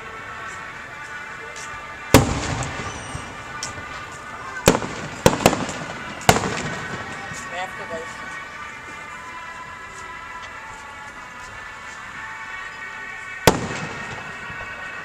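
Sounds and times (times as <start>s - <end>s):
fireworks bangs: 2.1s - 8.2s, 13.4s - 15.0s.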